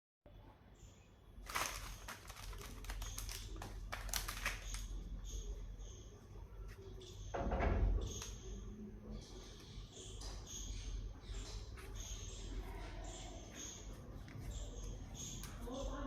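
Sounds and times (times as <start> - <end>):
wrapper crinkling and crackling: 1.4 - 5.4.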